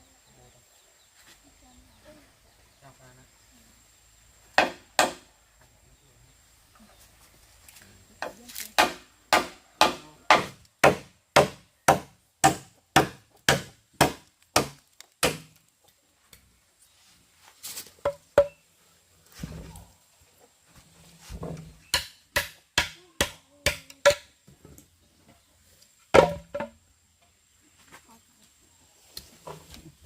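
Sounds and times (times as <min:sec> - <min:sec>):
wood being chopped: 0:04.5 - 0:05.3, 0:08.2 - 0:15.7, 0:21.5 - 0:24.3, 0:26.1 - 0:26.8.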